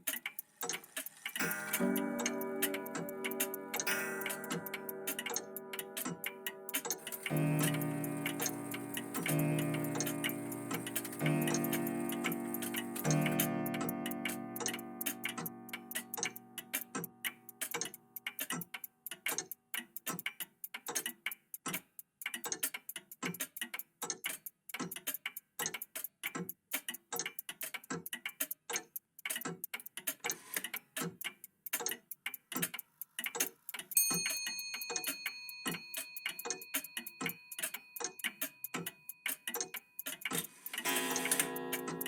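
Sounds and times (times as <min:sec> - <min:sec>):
mechanical clocks ticking: 0:00.0 - 0:42.0
clock chime ringing: 0:01.4 - 0:14.2, 0:34.0 - 0:37.9, 0:40.8 - 0:42.0.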